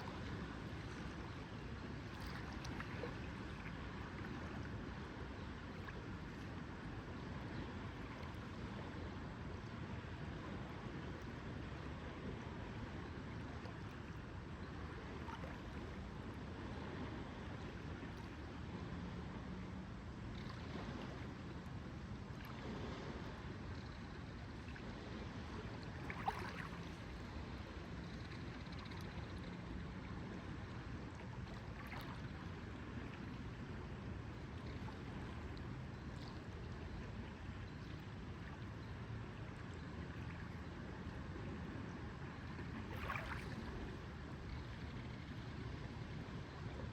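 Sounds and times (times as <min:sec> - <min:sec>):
water lapping: 0:00.0 - 0:09.0, 0:09.8 - 0:46.9
faint low hum: 0:00.0 - 0:46.9
faint ticks: 0:28.0 - 0:29.7.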